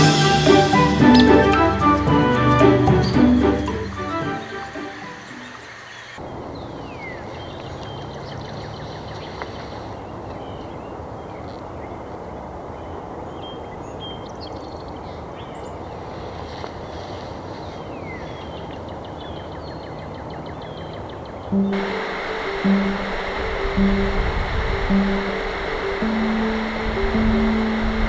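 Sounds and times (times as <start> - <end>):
downward-sliding bird whistles: 0.0 - 6.2
small birds chirping: 18.0 - 28.0
steady rushing noise: 21.6 - 28.0.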